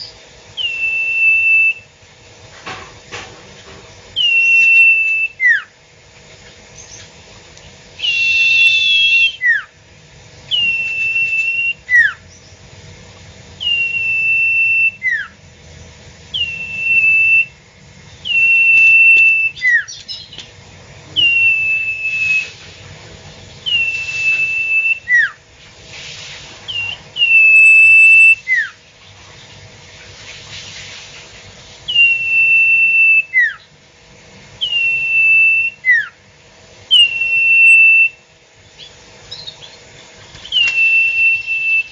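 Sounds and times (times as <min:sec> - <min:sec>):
bird whistling call: 0:00.0 - 0:01.9, 0:04.2 - 0:05.8, 0:08.0 - 0:09.8, 0:10.5 - 0:12.6, 0:13.6 - 0:15.4, 0:16.3 - 0:17.6, 0:18.2 - 0:20.4, 0:21.2 - 0:22.6, 0:23.6 - 0:25.4, 0:26.6 - 0:28.8, 0:31.8 - 0:33.7, 0:34.6 - 0:36.2, 0:36.9 - 0:38.2, 0:38.8 - 0:39.8, 0:40.4 - 0:41.9.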